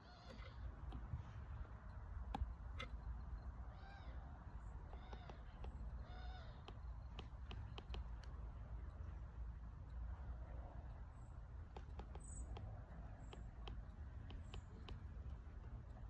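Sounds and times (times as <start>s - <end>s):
animal calls: 0.0s - 0.8s
low outdoor rumble: 0.0s - 16.0s
sharp clicks: 1.9s - 3.5s, 4.6s - 9.1s, 10.8s - 16.0s.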